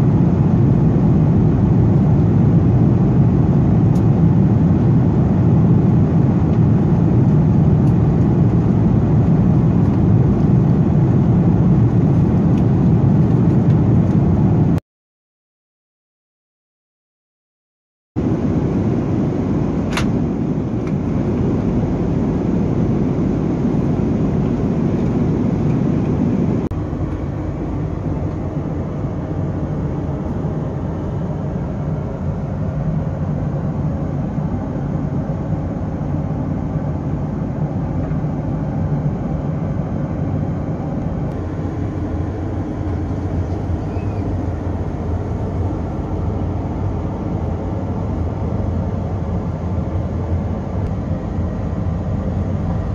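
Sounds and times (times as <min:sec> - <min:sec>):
airplane cabin roar: 0:00.0 - 0:14.8, 0:18.2 - 0:52.9
low hum: 0:18.2 - 0:52.9.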